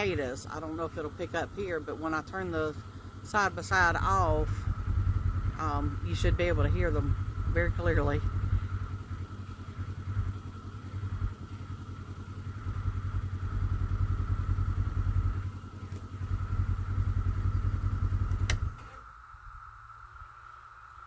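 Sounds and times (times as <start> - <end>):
utility vehicle engine running: 0.0 - 21.0
cicada chorus: 19.0 - 21.0.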